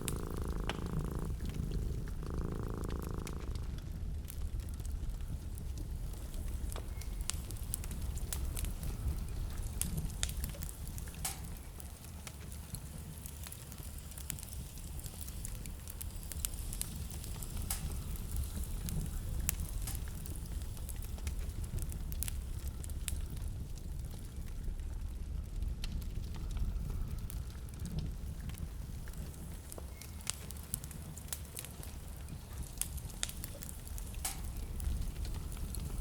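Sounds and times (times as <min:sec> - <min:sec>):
steady low rumble: 0:00.0 - 0:10.2
wood fire crackling: 0:00.0 - 0:36.0.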